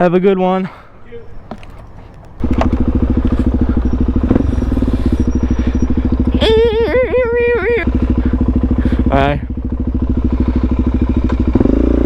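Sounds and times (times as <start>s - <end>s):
motorcycle engine idling: 1.1s - 12.0s
person calling out: 6.3s - 8.0s.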